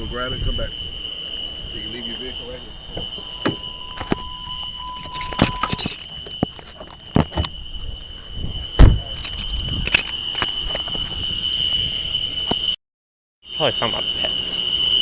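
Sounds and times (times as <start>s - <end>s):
crickets chirring: 0.0s - 12.8s, 13.4s - 15.0s
loud thump: 8.8s - 9.1s.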